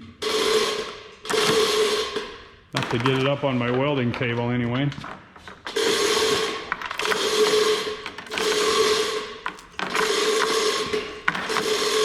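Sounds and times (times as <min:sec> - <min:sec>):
chain hoist whirring: 0:05.8 - 0:12.0.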